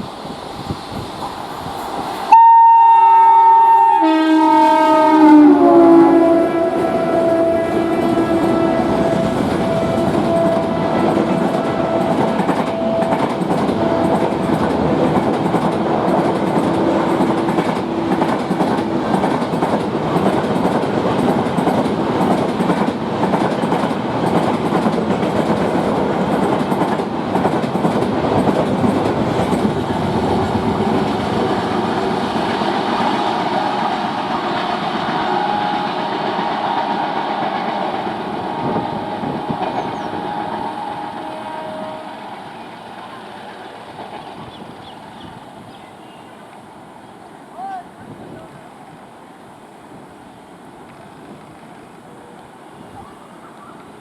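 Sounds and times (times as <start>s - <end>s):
train coaches rumbling and clattering: 0.0s - 2.4s, 4.4s - 54.0s
two-tone locomotive horn: 2.3s - 19.1s, 32.9s - 42.7s.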